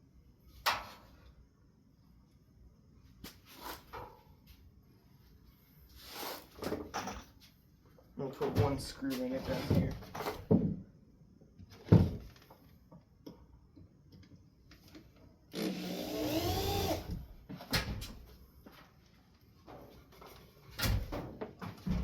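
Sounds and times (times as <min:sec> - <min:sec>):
power drill driving a screw: 0:15.5 - 0:17.2.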